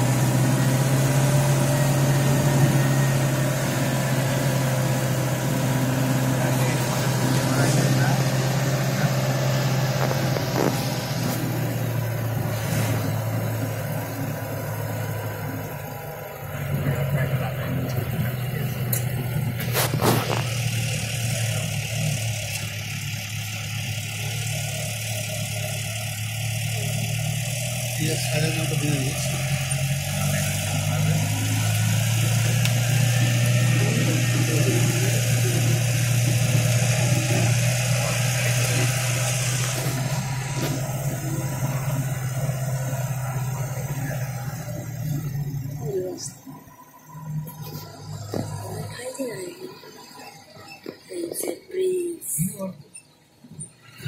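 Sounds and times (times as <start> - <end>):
car engine droning: 0.0 - 54.0.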